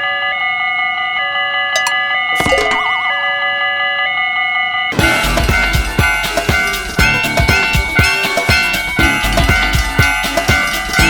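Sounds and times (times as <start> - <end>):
railroad crossing warning tones: 0.4 - 11.0
wobbling boing tone: 1.8 - 3.2.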